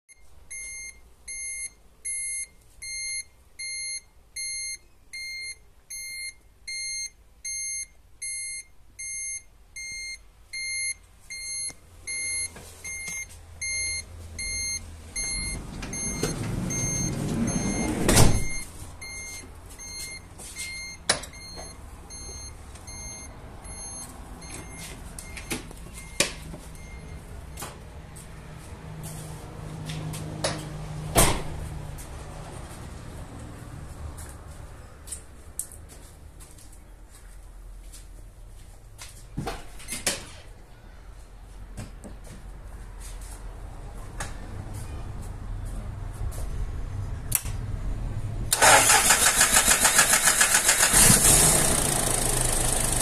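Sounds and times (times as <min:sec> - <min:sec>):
electronic beep: 0:00.1 - 0:27.2
engine clicks: 0:48.5 - 0:53.0
engine cranking and idling: 0:48.5 - 0:53.0.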